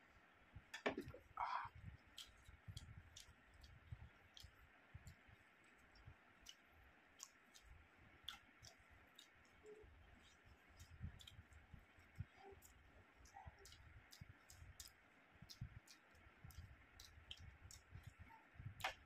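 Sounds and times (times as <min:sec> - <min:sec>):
soft chewing thuds: 0:00.0 - 0:19.0
wet mouth clicks and smacks: 0:01.9 - 0:09.6, 0:13.6 - 0:19.0.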